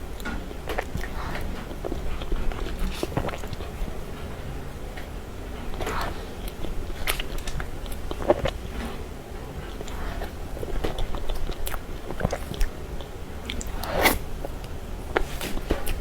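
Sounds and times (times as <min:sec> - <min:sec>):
person chewing cake: 0:00.0 - 0:16.0
wet mouth clicks and smacks: 0:09.8 - 0:16.0.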